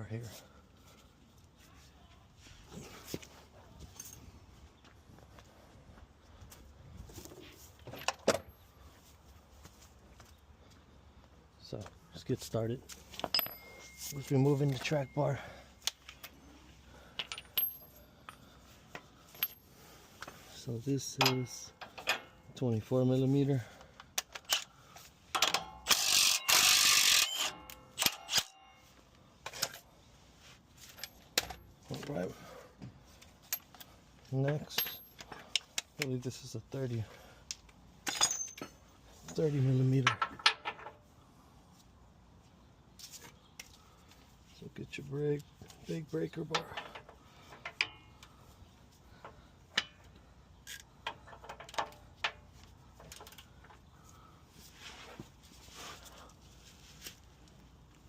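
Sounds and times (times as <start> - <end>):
metallic clicks and clinks: 13.2 - 16.4, 17.0 - 19.7, 21.0 - 22.6, 25.3 - 29.9, 33.4 - 36.2, 37.5 - 39.4
sharp metallic clicks: 25.4 - 28.8
wrench metal-on-metal noise: 25.4 - 28.9.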